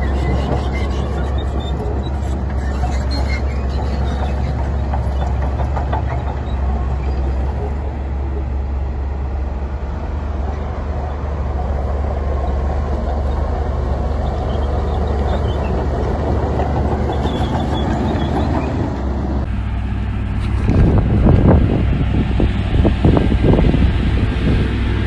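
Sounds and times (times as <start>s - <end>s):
diesel machinery rumbling: 0.0s - 25.0s.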